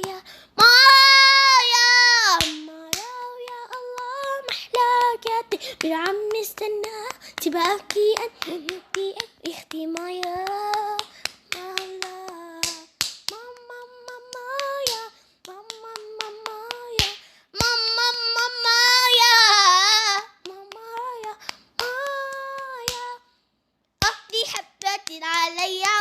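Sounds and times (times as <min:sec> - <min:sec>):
child singing wordless notes: 0:00.0 - 0:17.0, 0:17.6 - 0:23.2
rhythmic hand claps: 0:02.3 - 0:17.8, 0:20.4 - 0:23.2, 0:24.0 - 0:26.0.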